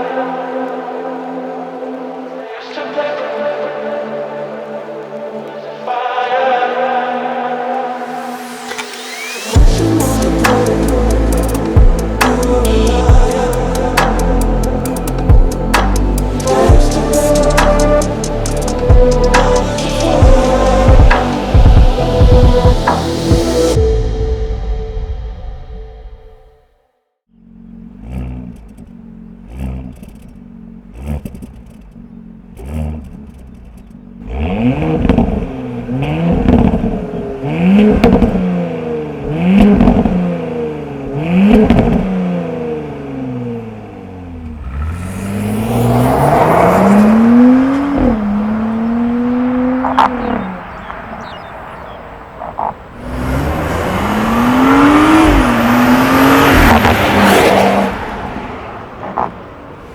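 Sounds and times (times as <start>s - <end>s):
car engine free revving: 8.1s - 24.1s, 27.3s - 59.9s
car accelerating with upshifts: 8.3s - 23.8s, 27.3s - 59.9s
car exhaust throttle blips: 27.3s - 59.9s.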